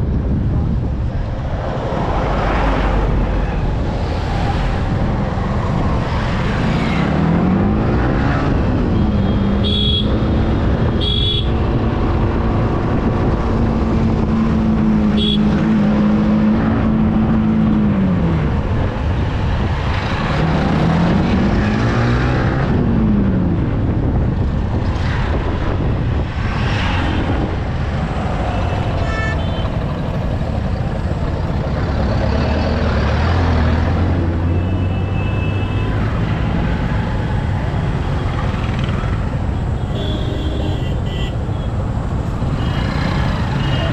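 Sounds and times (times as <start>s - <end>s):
wind noise on microphone: 0.0s - 32.2s
passing traffic: 0.0s - 43.9s.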